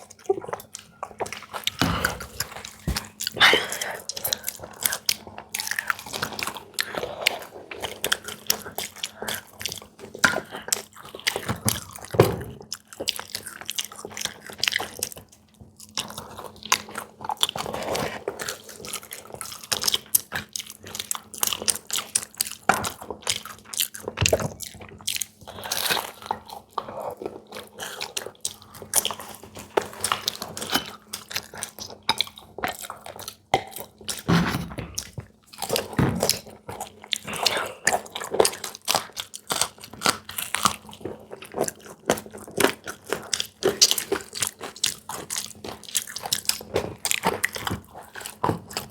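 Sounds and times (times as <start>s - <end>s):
chewing crisp snacks: 0.0s - 34.3s, 35.0s - 48.9s.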